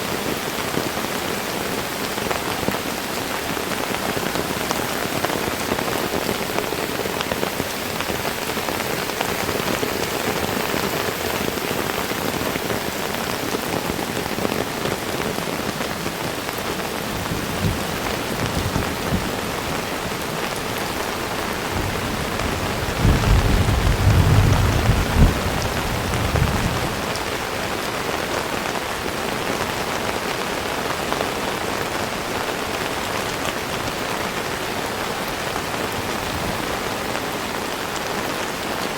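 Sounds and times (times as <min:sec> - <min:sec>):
heavy rain falling: 0:00.0 - 0:38.9
thunder rumbling: 0:16.2 - 0:27.5.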